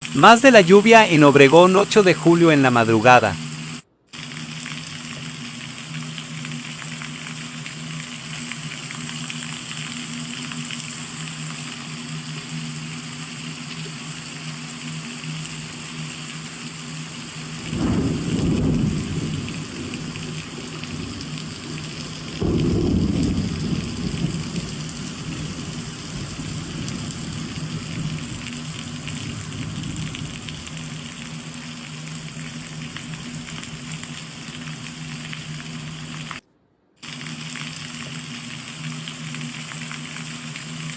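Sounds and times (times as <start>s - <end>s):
rain falling: 0.0s - 36.4s, 37.0s - 40.9s
low rolls of thunder: 17.6s - 31.6s.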